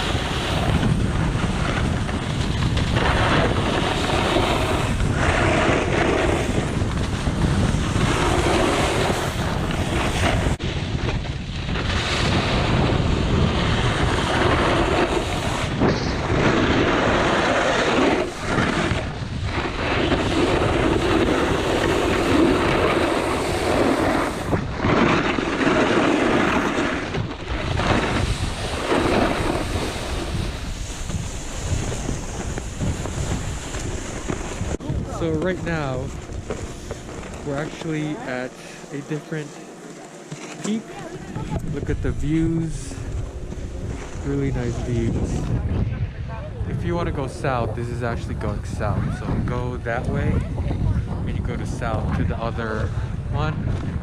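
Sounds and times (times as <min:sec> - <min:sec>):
wind rushing over microphone: 0:00.0 - 0:39.6, 0:40.6 - 0:54.0
snowboard edges scraping icy snow: 0:00.0 - 0:45.8.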